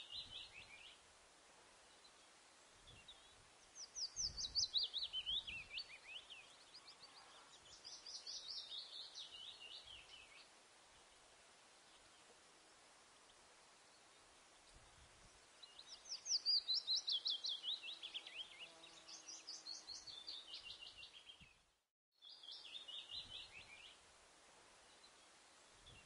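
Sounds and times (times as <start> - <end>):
bird singing whistled notes: 2.9 - 10.5, 15.6 - 21.6, 22.2 - 24.0.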